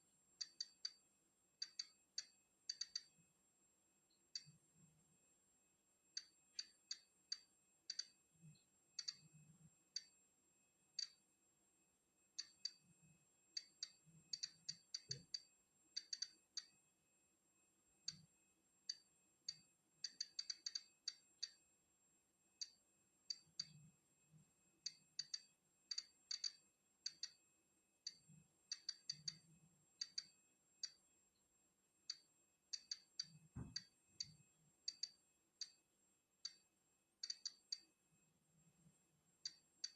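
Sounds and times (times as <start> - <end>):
geiger counter clicking: 0.4 - 1.0, 1.6 - 3.1, 6.2 - 8.2, 9.0 - 9.3, 11.0 - 11.2, 12.4 - 12.8, 13.5 - 16.8, 18.9 - 21.6, 22.6 - 23.8, 24.9 - 27.4, 28.1 - 31.0, 32.0 - 35.8, 36.4 - 38.0, 39.4 - 39.9.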